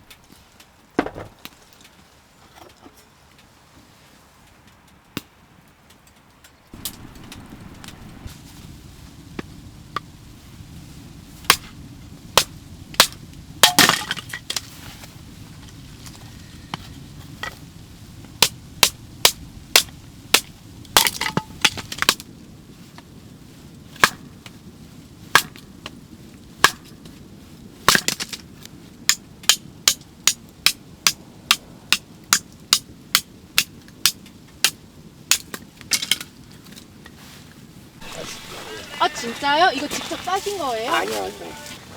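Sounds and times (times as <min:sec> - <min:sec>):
firewood splitting cracks: 0:05.9 - 0:08.4, 0:11.5 - 0:11.8, 0:12.4 - 0:14.9, 0:18.3 - 0:22.3, 0:25.3 - 0:26.0, 0:26.6 - 0:27.2, 0:27.8 - 0:36.9.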